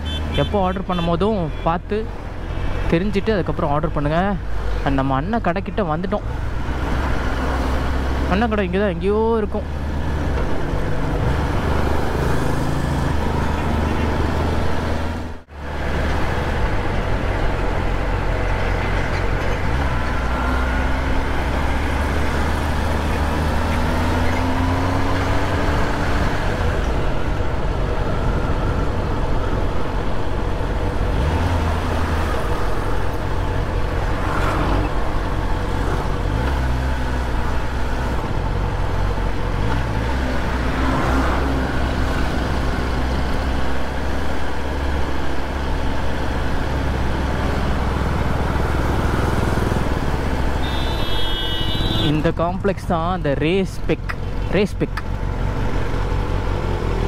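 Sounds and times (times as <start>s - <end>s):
road noise: 0.0s - 57.0s
motorcycle engine: 46.4s - 52.1s.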